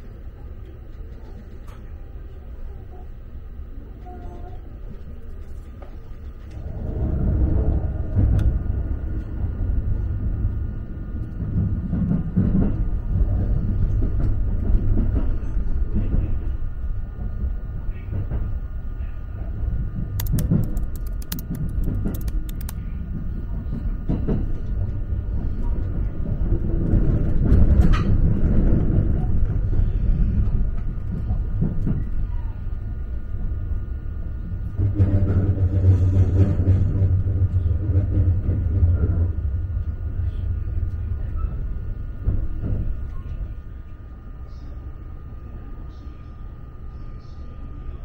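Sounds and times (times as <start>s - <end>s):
train cabin rumble: 5.7s - 47.8s
sharp clicks: 20.2s - 22.8s.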